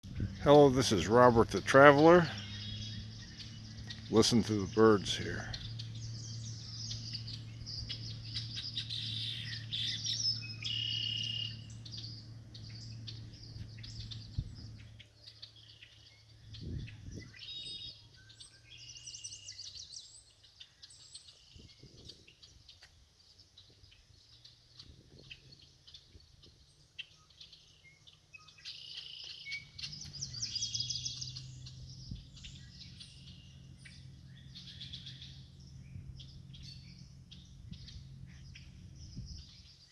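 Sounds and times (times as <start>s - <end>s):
steady low hum: 0.0s - 15.0s, 29.6s - 39.9s
chorus of wild birds chirping: 0.0s - 39.9s.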